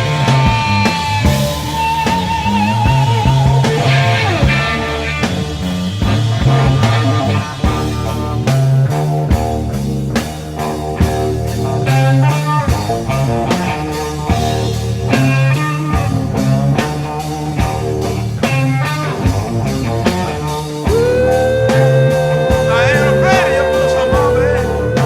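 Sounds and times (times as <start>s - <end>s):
rock band playing: 0.0s - 25.0s
electric guitar long note: 20.9s - 25.0s.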